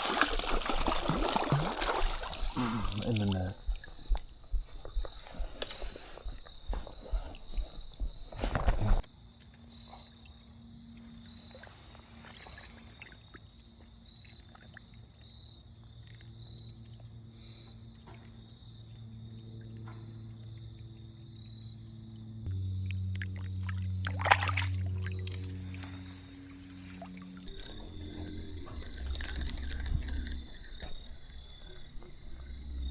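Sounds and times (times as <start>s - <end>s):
fish splashing in net: 0.0s - 3.0s, 23.0s - 27.5s
background music low chords: 19.3s - 32.9s
faint pulsing high tone: 22.5s - 32.9s.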